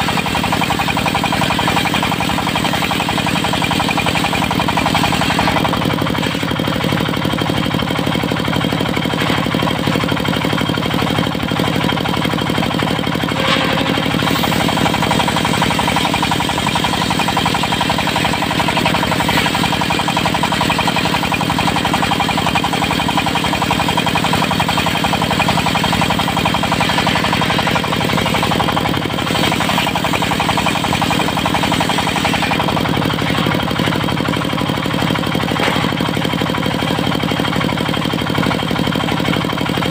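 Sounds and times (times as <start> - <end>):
diesel engine with fast knock: 0.0 - 39.9.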